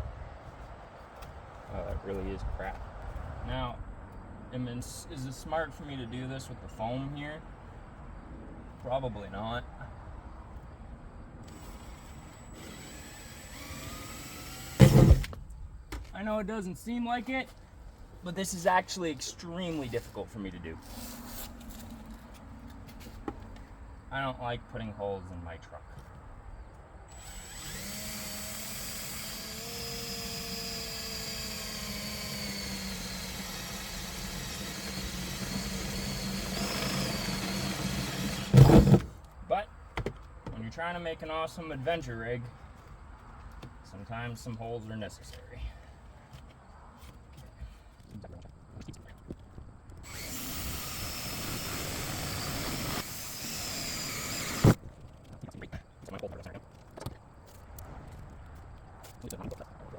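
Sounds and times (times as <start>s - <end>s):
power drill boring sheet metal: 11.5s - 15.3s, 27.1s - 39.0s, 50.0s - 54.8s
loud thump: 14.8s - 16.1s.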